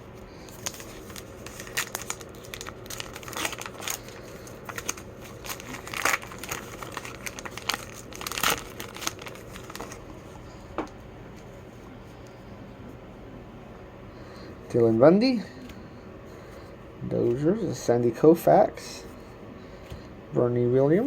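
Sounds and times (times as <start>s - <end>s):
wrapper tearing and crinkling: 0.5s - 10.2s.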